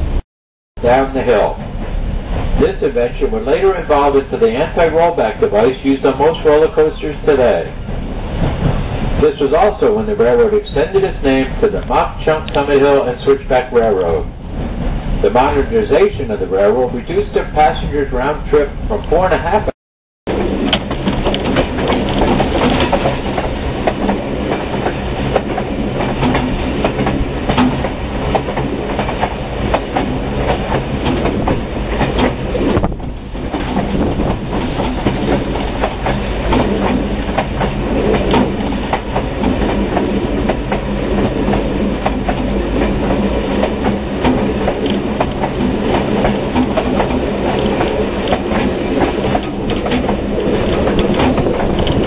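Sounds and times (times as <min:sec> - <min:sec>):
train rumble: 0:00.0 - 0:00.2, 0:00.8 - 0:52.0
wheel clicks over rail joints: 0:20.6 - 0:52.0.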